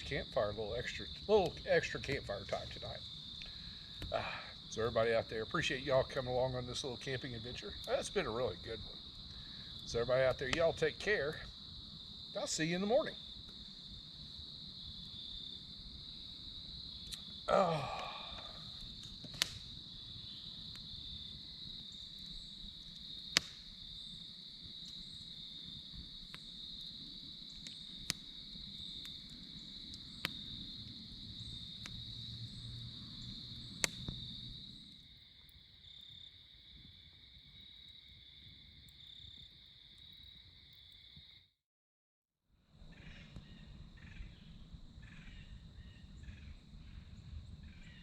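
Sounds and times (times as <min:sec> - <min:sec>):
campfire popping: 0:00.0 - 0:41.4
crickets trilling: 0:00.0 - 0:41.6, 0:42.7 - 0:48.0.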